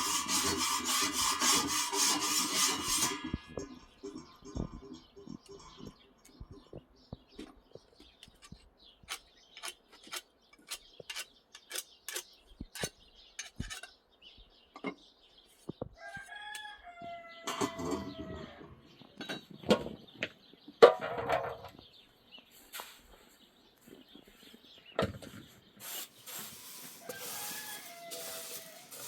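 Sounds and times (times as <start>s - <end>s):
rooster crowing: 16.0s - 18.8s, 27.0s - 29.0s.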